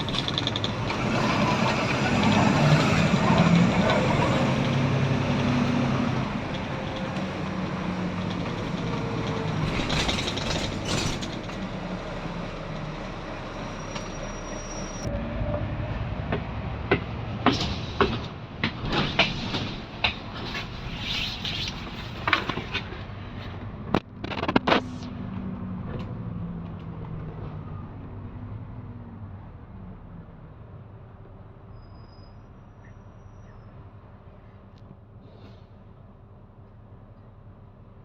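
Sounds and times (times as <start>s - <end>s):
sharp rattles and knocks: 0.0s - 11.8s, 16.3s - 25.0s
bus engine hum: 0.0s - 38.0s
road and running noise: 0.0s - 38.0s.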